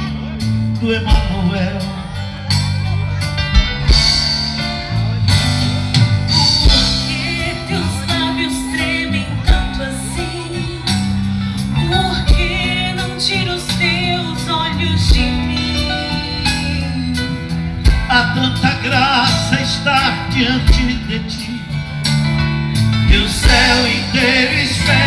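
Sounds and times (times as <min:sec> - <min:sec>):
guitar: 0:00.0 - 0:25.0
live band pop song: 0:00.0 - 0:25.0
regular drum beat: 0:00.0 - 0:25.0.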